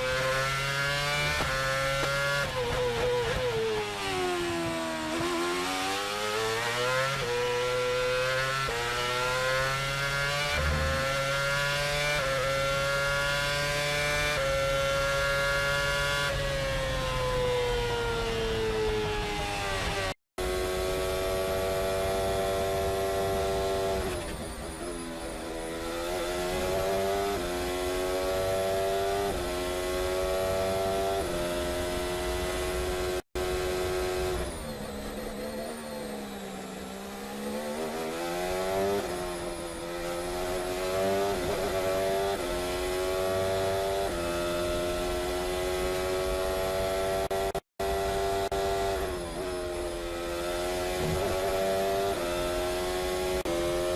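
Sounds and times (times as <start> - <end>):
race car engine revving: 36.6 - 53.9.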